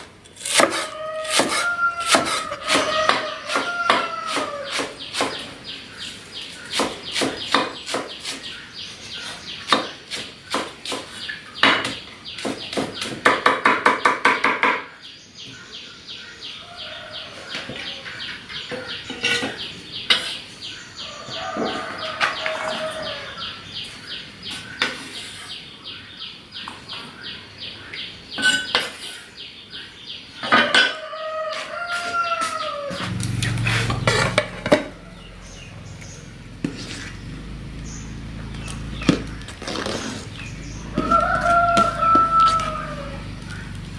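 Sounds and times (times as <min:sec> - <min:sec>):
chicken calls: 0:00.4 - 0:11.7, 0:16.3 - 0:25.8, 0:30.4 - 0:37.2, 0:38.5 - 0:43.8.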